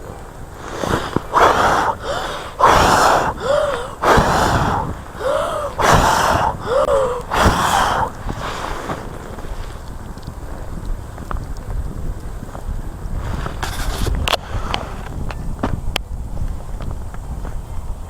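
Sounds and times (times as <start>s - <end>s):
person huffing forceful breaths: 0.5s - 9.8s, 13.3s - 15.2s.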